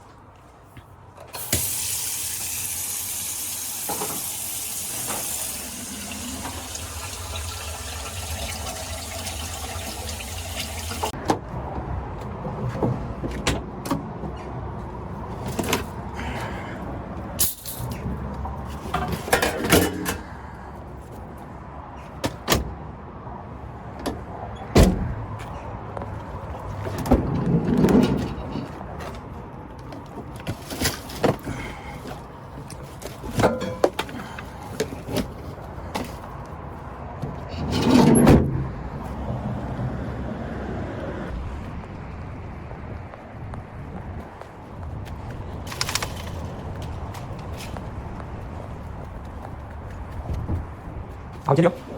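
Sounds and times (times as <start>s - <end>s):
water running into sink: 1.9s - 11.1s.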